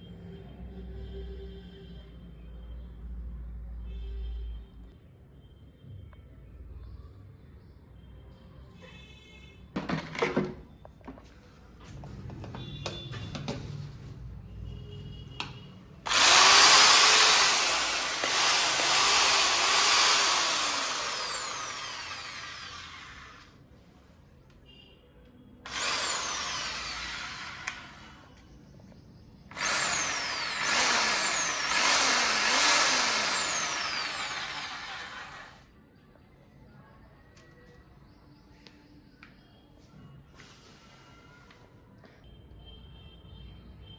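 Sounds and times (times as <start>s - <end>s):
electric drill running: 16.1s - 23.5s, 25.7s - 28.3s, 29.5s - 35.7s.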